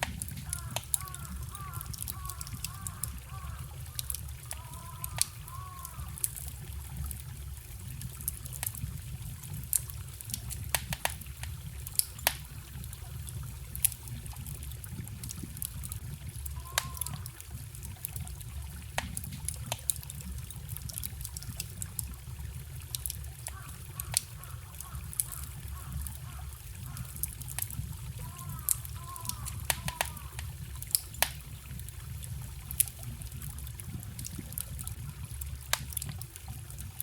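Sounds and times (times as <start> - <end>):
forest stream trickling: 0.0 - 37.0
wood fire crackling and popping: 0.0 - 37.0
bird call: 16.6 - 17.2, 28.3 - 30.4.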